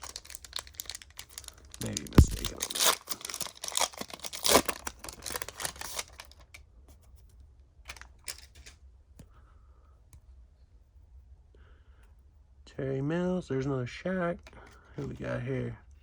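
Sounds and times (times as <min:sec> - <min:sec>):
wrapper rustling: 0:00.0 - 0:06.6.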